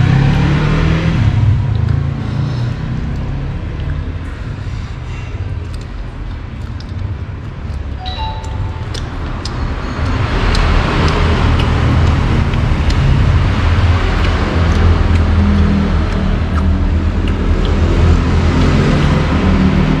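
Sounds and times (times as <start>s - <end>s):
short tone: 8.0s - 9.1s.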